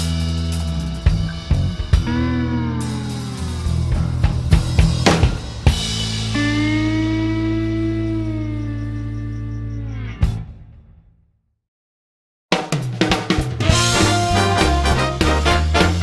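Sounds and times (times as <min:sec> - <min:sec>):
drum kit: 0:00.0 - 0:07.3, 0:12.5 - 0:16.0
rock music: 0:00.0 - 0:10.8, 0:12.6 - 0:16.0
bass line: 0:00.0 - 0:10.9, 0:13.3 - 0:16.0
held bending lead note: 0:06.3 - 0:09.3.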